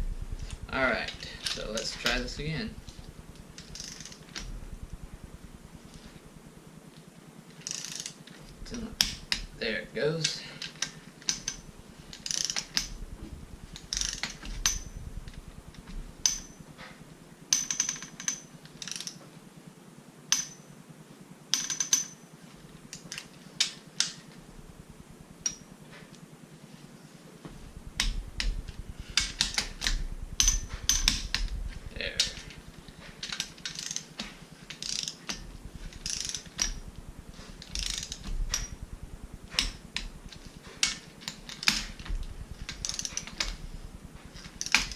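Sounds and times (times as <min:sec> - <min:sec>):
ratchet wrench clicking: 0:02.9 - 0:04.5, 0:07.6 - 0:09.5, 0:10.2 - 0:13.0, 0:13.8 - 0:16.6, 0:17.5 - 0:19.2, 0:21.5 - 0:22.2, 0:27.9 - 0:38.9, 0:39.5 - 0:44.9.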